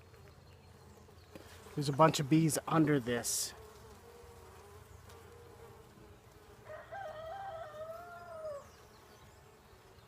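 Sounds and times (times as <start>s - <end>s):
hum of honeybees: 0.0s - 10.0s
rooster crowing: 6.6s - 8.7s.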